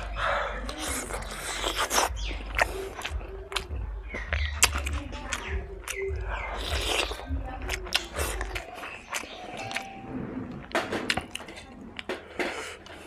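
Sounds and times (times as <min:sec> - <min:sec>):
wet chewing and lip-smacking: 0:00.0 - 0:10.0.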